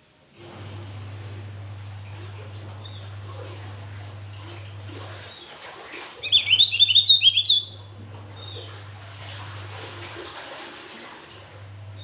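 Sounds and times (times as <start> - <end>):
steady low hum: 0.4 - 10.4, 11.4 - 12.0
bird chirping rapidly: 6.2 - 8.7.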